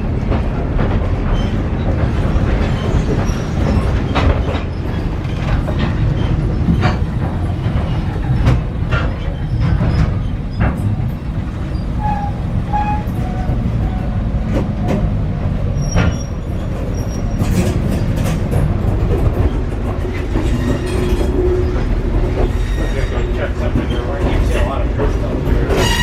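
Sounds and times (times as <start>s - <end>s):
train car rumbling on track: 0.0s - 26.0s
high wheel squeals: 11.6s - 14.2s, 15.7s - 17.6s, 22.4s - 23.5s.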